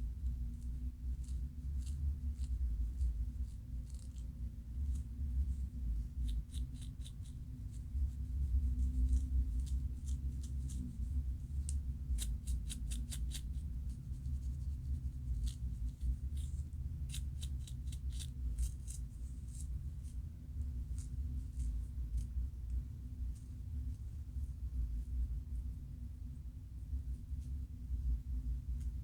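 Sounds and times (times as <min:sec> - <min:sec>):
scratching scalp: 0:00.2 - 0:22.4.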